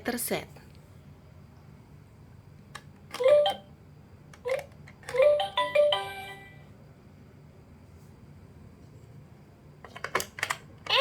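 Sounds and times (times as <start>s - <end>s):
toy click: 2.7s - 3.7s, 4.3s - 5.8s
electronic toy jingle beeping: 5.1s - 6.7s.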